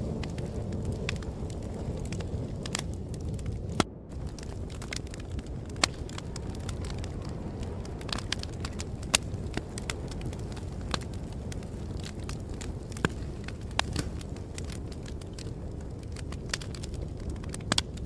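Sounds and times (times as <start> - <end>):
low rumble: 0.0 - 11.9
sharp pops from fire: 0.0 - 18.0
wood fire crackling: 0.0 - 18.0.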